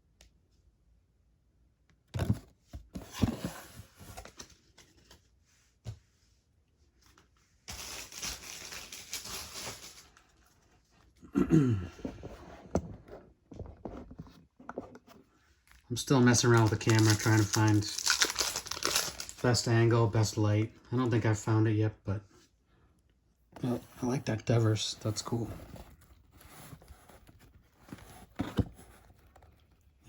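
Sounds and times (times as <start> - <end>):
wrapper tearing and crinkling: 7.7 - 10.2, 16.0 - 19.5.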